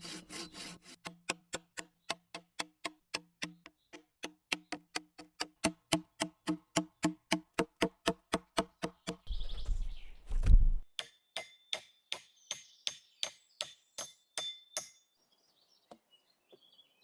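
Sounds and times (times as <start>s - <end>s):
hand saw cutting wood: 0.0s - 1.8s.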